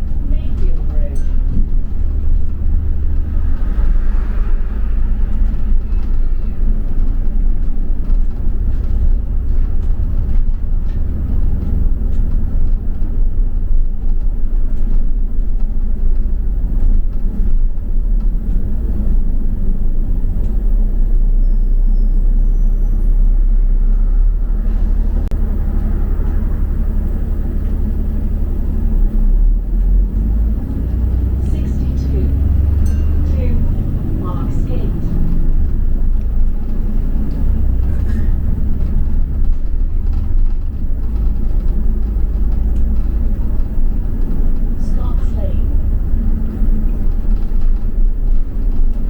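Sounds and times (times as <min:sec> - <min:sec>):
bus engine and road rumble: 0:00.0 - 0:49.0
faint rattles: 0:25.4 - 0:49.0.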